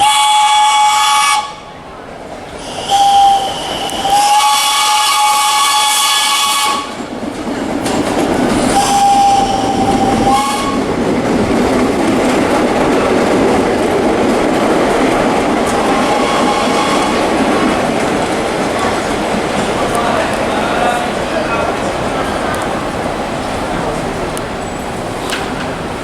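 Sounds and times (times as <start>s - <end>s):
train horn blasts: 0.0s - 1.8s, 2.7s - 7.0s, 8.7s - 10.9s, 15.7s - 17.3s.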